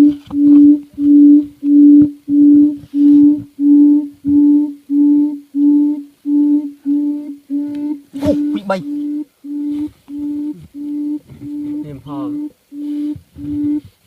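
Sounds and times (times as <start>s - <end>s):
low hooting call from speaker: 7.6s - 12.6s.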